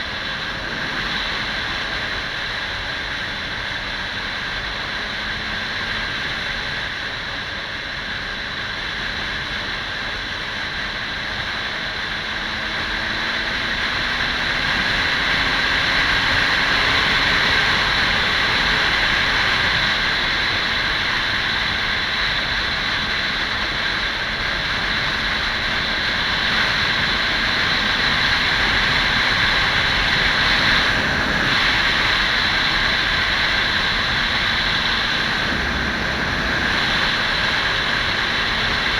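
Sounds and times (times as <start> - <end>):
motorcycle engine accelerating: 8.5 - 38.9
wind rush over microphone: 9.2 - 38.9.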